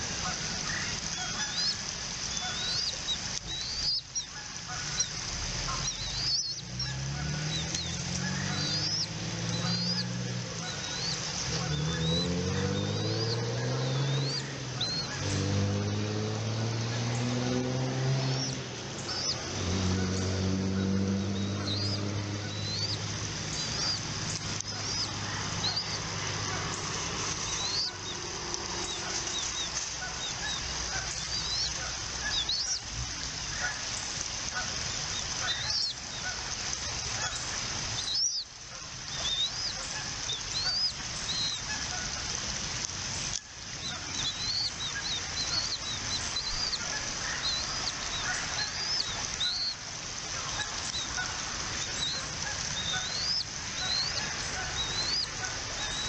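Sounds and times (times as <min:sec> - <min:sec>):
steady background hiss: 0:00.0 - 0:55.9
high-pitched bird chirps: 0:02.4 - 0:04.3, 0:05.8 - 0:06.6.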